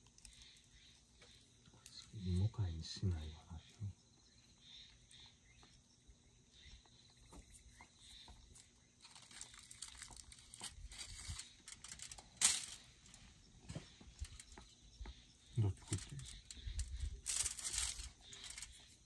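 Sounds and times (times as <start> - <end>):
soft crinkling and crackling: 0.0 - 2.6, 6.8 - 19.0.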